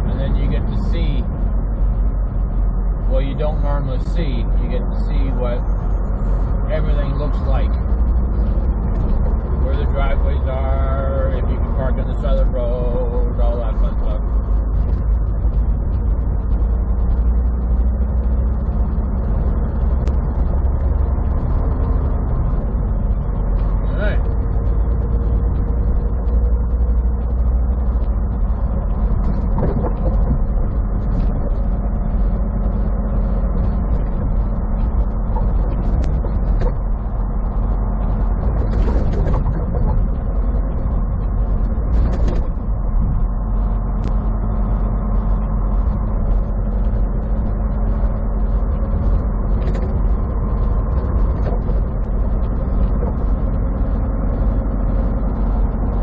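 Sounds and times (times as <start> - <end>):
road noise: 0.0 - 56.0
truck engine running: 0.0 - 56.0.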